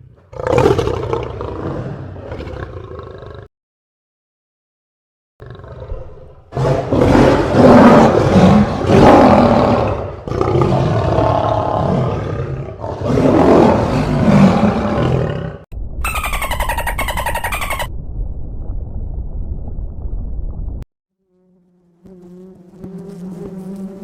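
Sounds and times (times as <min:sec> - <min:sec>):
large animal calling: 0:12.9 - 0:17.9.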